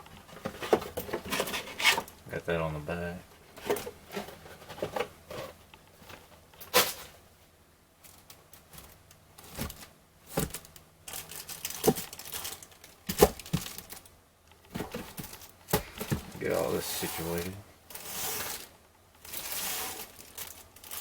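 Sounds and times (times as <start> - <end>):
plastic wrapping crinkling and tearing: 9.6 - 14.1, 16.4 - 21.0.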